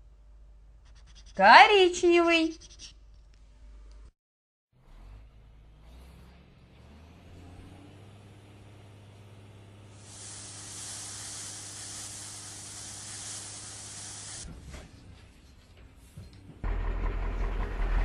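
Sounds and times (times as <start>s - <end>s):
truck engine humming: 4.9s - 14.4s
air hissing: 9.9s - 14.5s.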